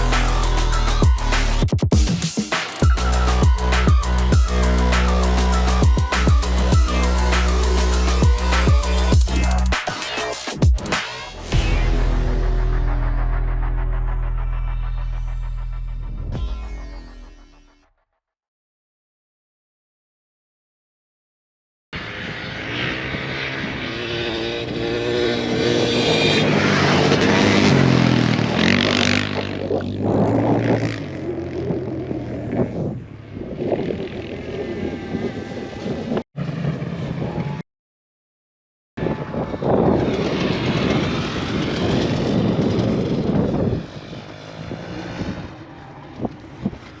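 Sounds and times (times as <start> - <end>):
motorcycle engines revving: 22.0 - 37.5, 39.0 - 47.0
wind noise: 39.0 - 46.9.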